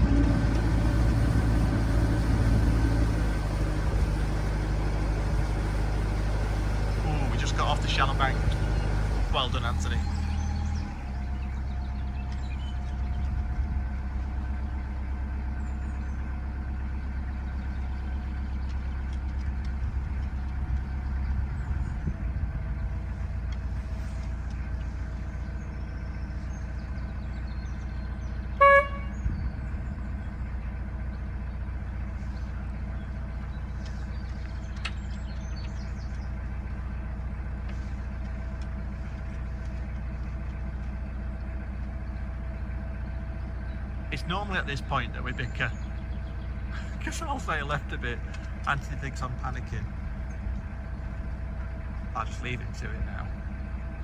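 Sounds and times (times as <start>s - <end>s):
boat diesel engine running: 0.0s - 54.0s
short horn toot: 28.6s - 29.2s.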